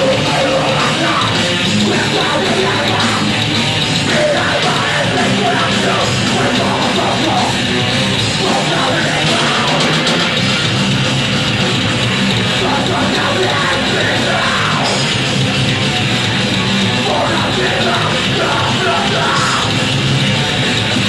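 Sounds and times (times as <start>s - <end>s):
distorted electric guitars: 0.0s - 21.0s
drums: 0.0s - 21.0s
shouted vocals: 12.6s - 15.1s, 17.0s - 19.8s.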